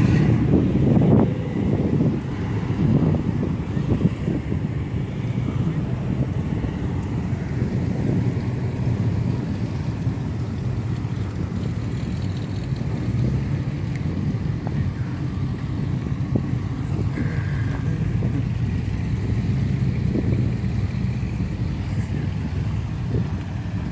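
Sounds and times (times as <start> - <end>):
car engines low rumble: 0.0 - 23.9.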